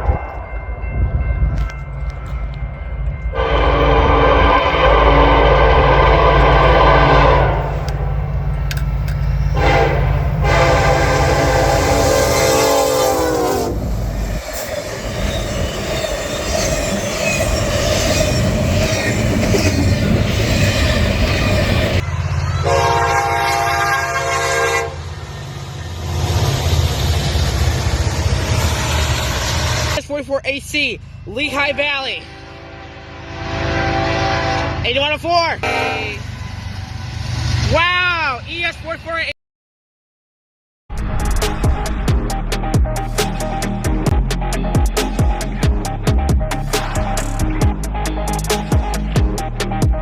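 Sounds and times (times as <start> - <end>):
locomotive engine rumble: 0.0 - 32.8
locomotive air horn: 3.3 - 8.2, 9.5 - 13.9, 22.6 - 25.1, 32.2 - 35.0, 35.6 - 36.2.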